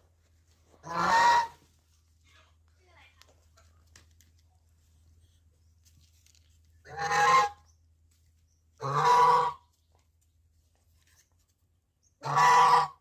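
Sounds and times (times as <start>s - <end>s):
goose honking: 0.8s - 1.6s, 6.8s - 7.6s, 8.8s - 9.6s, 12.2s - 13.0s.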